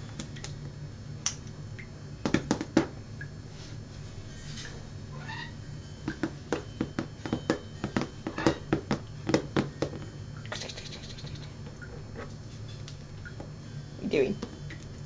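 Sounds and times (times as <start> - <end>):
parrot tapping on hard surface: 6.0 - 10.0.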